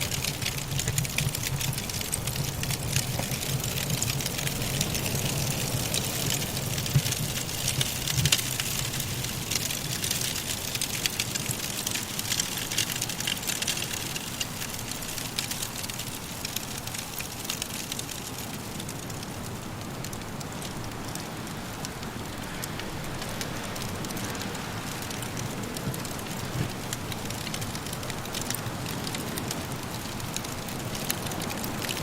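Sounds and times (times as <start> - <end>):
soft wind hiss: 0.0 - 32.0
wood fire crackling: 0.0 - 32.0.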